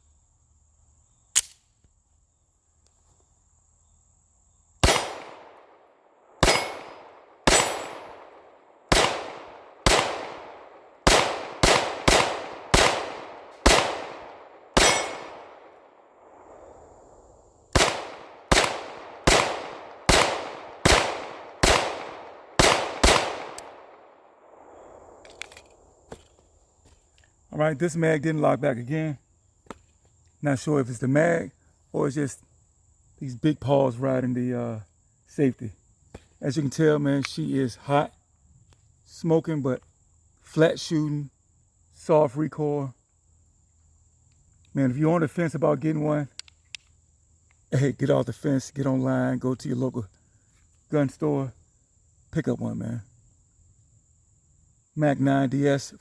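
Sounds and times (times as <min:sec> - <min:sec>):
small click: 0:01.3 - 0:02.0, 0:46.3 - 0:47.6
pistol shots with echo: 0:04.8 - 0:16.7, 0:17.8 - 0:25.2.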